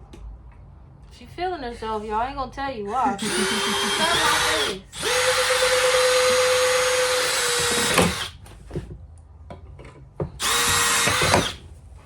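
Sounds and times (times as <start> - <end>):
power drill whining: 3.2 - 8.4, 10.4 - 11.6.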